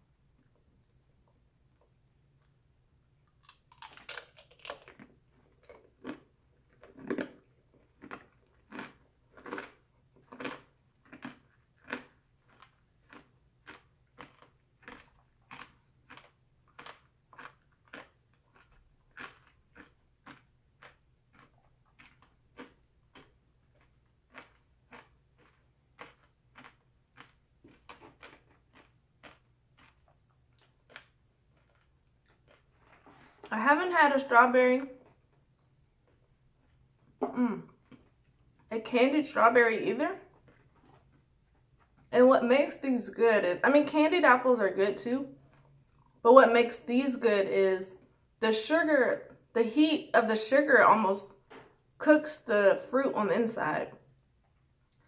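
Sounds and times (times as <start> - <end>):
crunchy candy chewing: 3.3 - 33.5.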